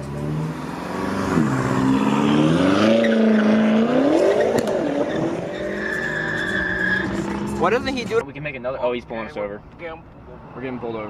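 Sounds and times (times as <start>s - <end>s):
truck engine revving loudly: 0.0s - 7.8s.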